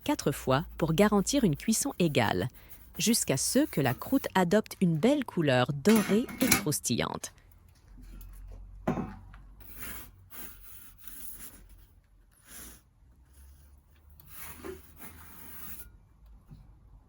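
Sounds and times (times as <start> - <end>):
metal peel scraping stone: 0.1 - 5.2, 13.5 - 16.0.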